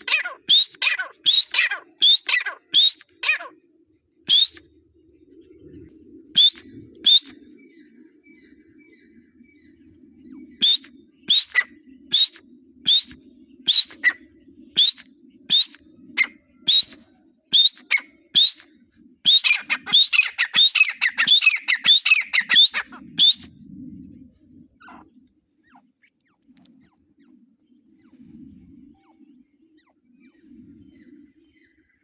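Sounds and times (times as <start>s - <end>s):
partridge calling: 0.0s - 3.5s, 4.3s - 4.6s, 10.6s - 14.2s, 14.8s - 17.0s, 17.6s - 18.6s, 19.3s - 23.5s, 24.8s - 25.1s.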